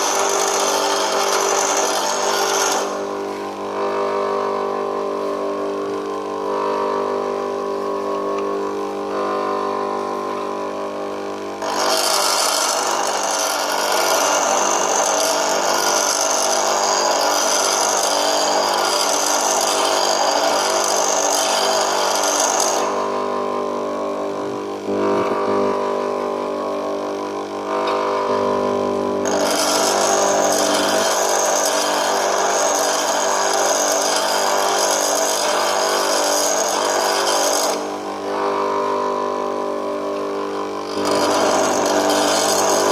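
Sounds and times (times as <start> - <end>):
tool bit grinding on wheel: 0.0 - 3.1, 11.6 - 23.0, 29.2 - 38.2, 40.6 - 42.9
bench grinder motor running: 0.0 - 42.9.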